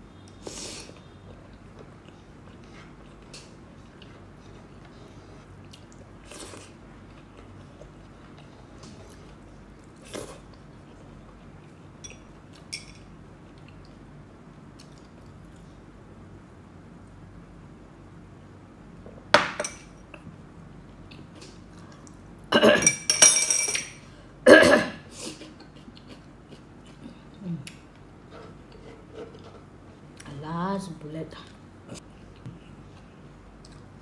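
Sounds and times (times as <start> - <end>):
person chewing food: 14.7 - 15.6, 25.4 - 29.5, 31.9 - 34.0.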